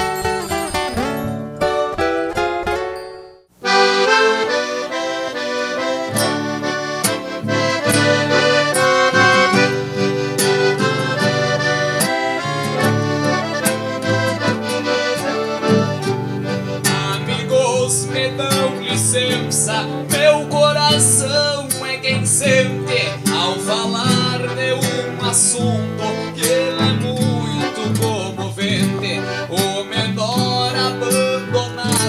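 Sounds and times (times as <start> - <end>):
accordion tune: 0.0 - 32.0
steady bass line: 3.7 - 18.0.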